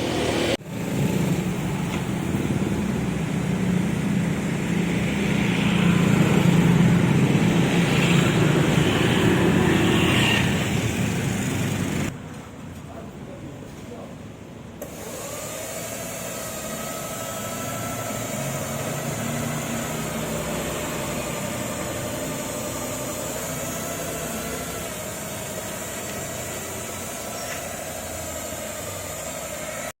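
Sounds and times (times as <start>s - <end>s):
machine hum: 14.8s - 29.9s.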